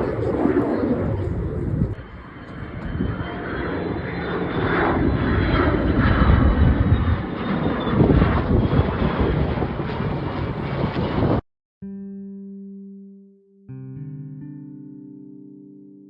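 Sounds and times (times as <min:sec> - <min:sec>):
airplane flying past: 0:00.0 - 0:11.4.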